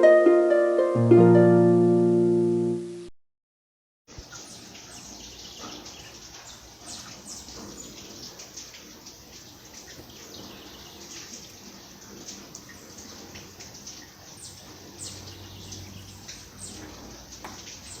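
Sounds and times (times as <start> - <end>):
drips and splashes: 4.1 - 18.0
rain falling: 4.1 - 18.0.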